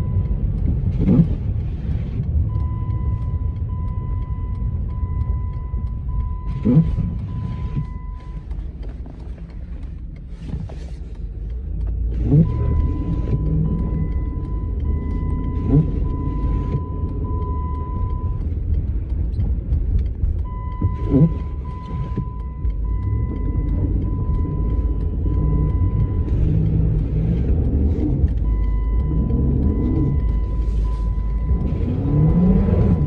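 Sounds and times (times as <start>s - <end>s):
engine and road rumble: 0.0s - 33.0s.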